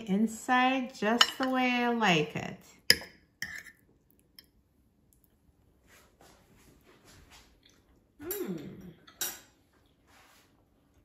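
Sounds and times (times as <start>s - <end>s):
person chewing softly: 3.6s - 10.1s
person humming mmm: 8.2s - 9.0s.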